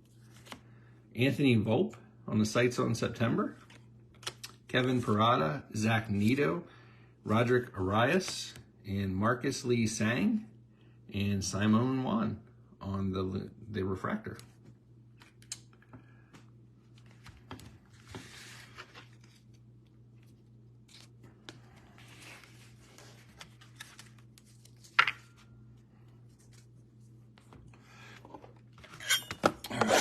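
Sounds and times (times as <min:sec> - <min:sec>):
steady low hum: 0:00.0 - 0:30.0
trading cards rustling: 0:16.4 - 0:27.2.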